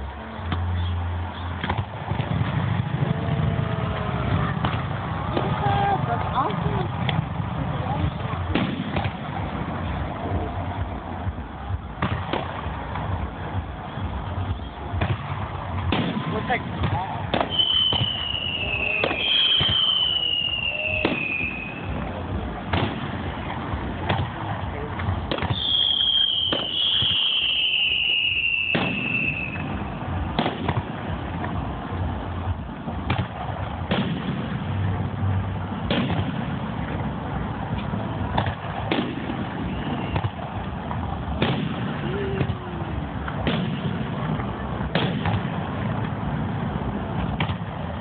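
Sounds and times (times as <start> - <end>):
fireworks bangs: 0.4 - 48.0
whistling firework shells: 17.3 - 22.0, 25.4 - 29.8, 38.9 - 40.4.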